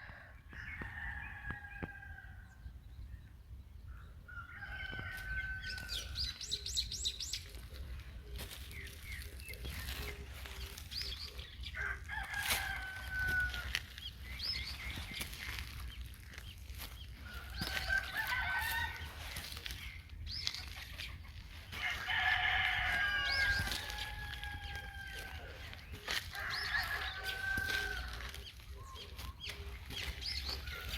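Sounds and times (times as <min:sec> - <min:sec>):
small birds chirping: 0:02.7 - 0:30.9
rooster crowing: 0:04.4 - 0:06.2, 0:11.8 - 0:13.8, 0:17.3 - 0:19.3, 0:21.8 - 0:28.4.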